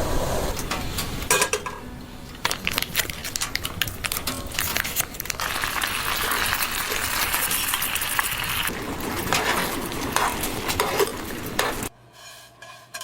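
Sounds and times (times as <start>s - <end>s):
food sizzling in a pan: 0.0s - 11.9s
utensils clinking: 0.5s - 11.9s.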